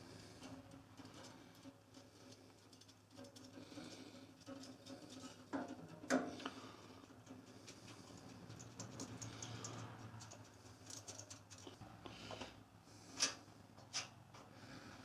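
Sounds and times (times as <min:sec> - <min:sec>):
metal tools clicking and knocking: 0:07.2 - 0:11.8.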